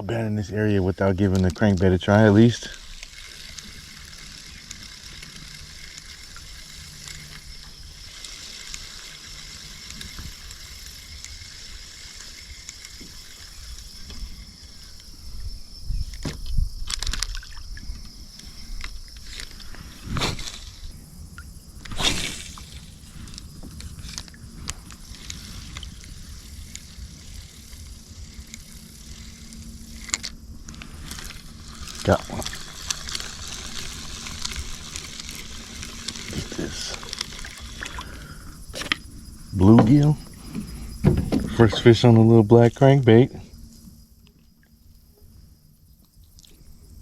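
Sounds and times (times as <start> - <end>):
water sloshing around kayak: 0.0 - 47.0.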